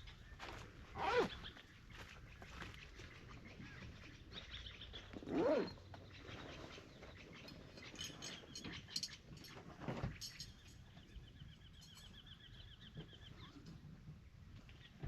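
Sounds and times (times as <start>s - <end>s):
small birds chirping: 0.0s - 15.0s
drawn-out animal call: 1.0s - 1.5s.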